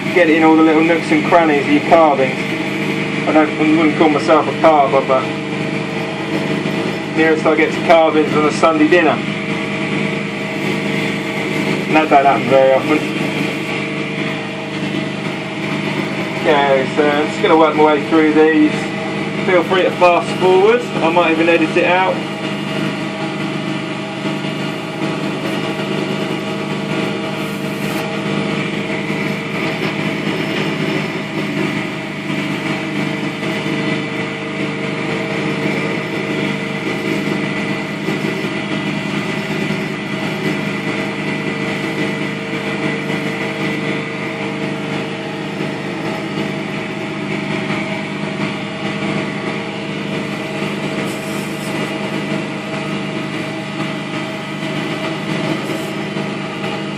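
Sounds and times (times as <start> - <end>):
wood lathe motor hum: 0.0 - 56.9
sandpaper sanding hiss: 27.4 - 28.0, 51.0 - 51.9.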